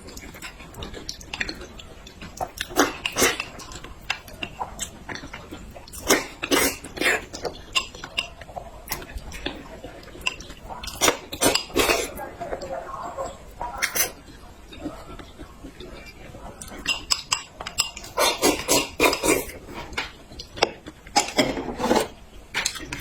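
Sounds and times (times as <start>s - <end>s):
person chewing and biting: 16.6s - 19.6s.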